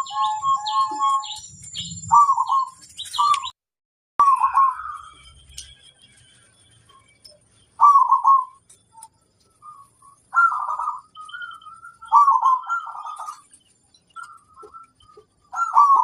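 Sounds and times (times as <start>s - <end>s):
doves cooing: 0.0s - 1.4s, 2.0s - 3.4s, 7.8s - 8.6s, 10.3s - 13.5s, 14.2s - 16.0s
faint high chirps: 0.0s - 3.6s, 4.2s - 16.0s.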